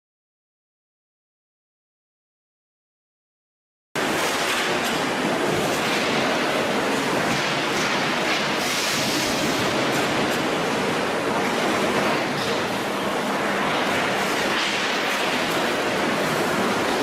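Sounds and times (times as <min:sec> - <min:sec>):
production line machine noise: 0:04.0 - 0:17.0.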